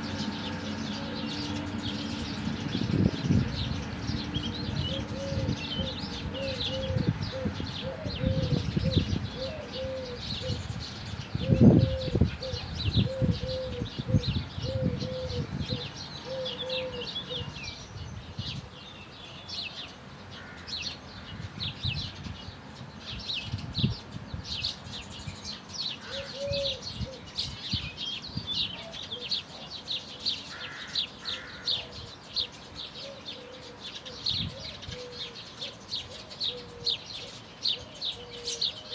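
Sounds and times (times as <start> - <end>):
lower bird call: 0.0 - 19.8
birds chirping: 0.0 - 38.9.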